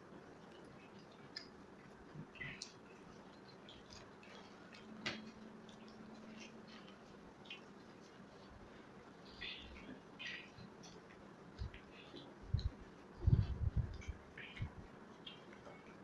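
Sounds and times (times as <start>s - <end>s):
soft chewing: 0.0s - 16.0s
small mouth and hand clicks: 0.4s - 8.2s, 9.8s - 16.0s.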